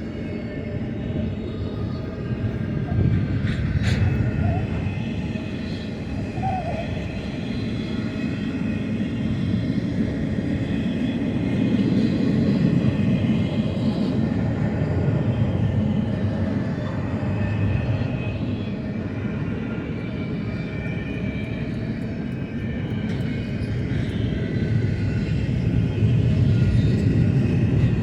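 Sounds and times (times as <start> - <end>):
freight train rumbling past: 0.0 - 18.7.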